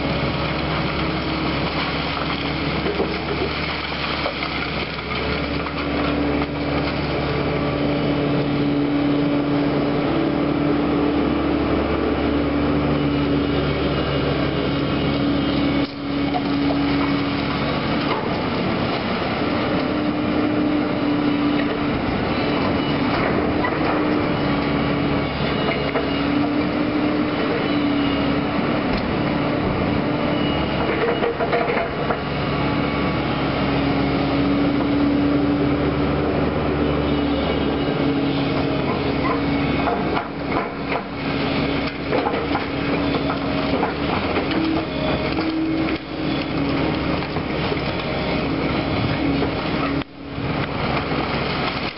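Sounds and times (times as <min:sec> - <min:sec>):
diesel engine under load: 0:00.0 - 0:51.9.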